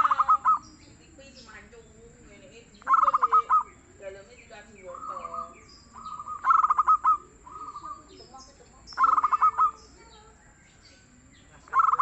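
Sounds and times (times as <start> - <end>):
dove cooing: 0.0 - 12.0
high bird chirps: 0.0 - 12.0.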